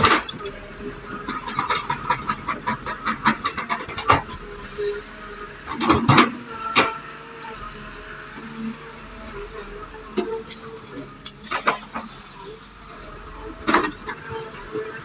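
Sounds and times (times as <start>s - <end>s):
excavator metallic clanks and knocks: 0.0s - 4.8s, 5.5s - 7.0s, 13.6s - 15.0s
faint engine hum: 0.0s - 15.0s.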